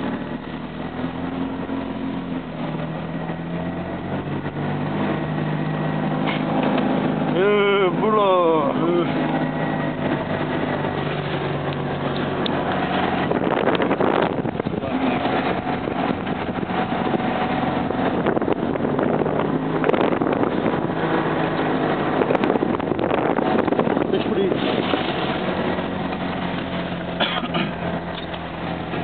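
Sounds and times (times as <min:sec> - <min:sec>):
car engine running: 0:00.0 - 0:29.0.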